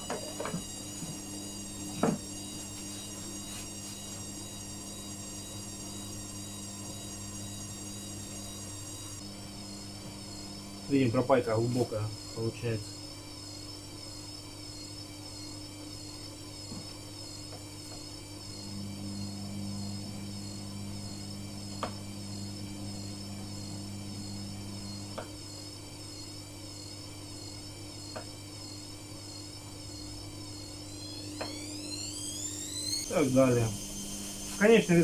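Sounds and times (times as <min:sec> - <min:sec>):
steady electrical hum: 0:00.0 - 0:35.0
high warbling whine: 0:30.8 - 0:35.0.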